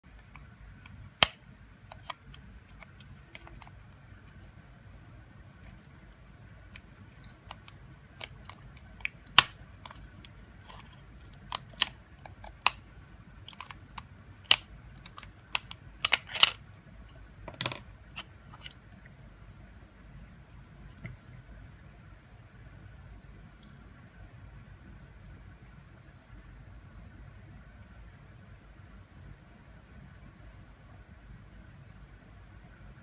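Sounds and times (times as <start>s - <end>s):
plastic parts clicking and snapping: 0.1s - 4.4s, 6.7s - 12.8s, 13.4s - 16.6s, 17.5s - 18.8s.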